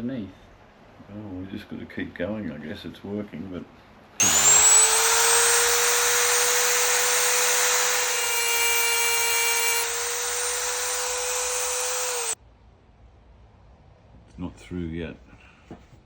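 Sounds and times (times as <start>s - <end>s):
rotary tool grinding: 4.2s - 12.4s.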